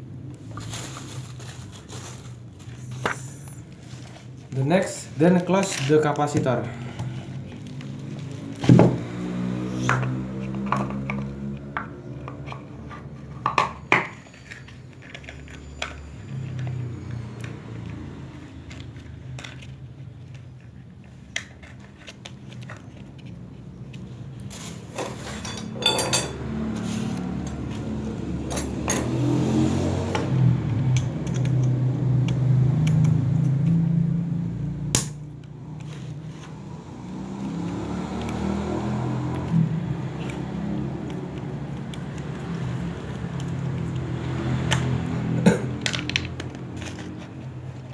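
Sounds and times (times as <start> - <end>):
tools and metal parts clinking: 24.9 - 26.5.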